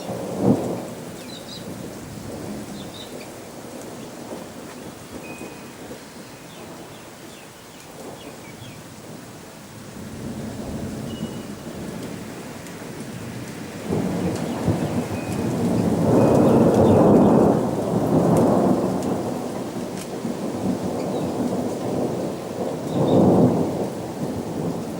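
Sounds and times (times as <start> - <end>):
steady rain: 0.0 - 24.9
thunder rumbling: 0.0 - 24.9.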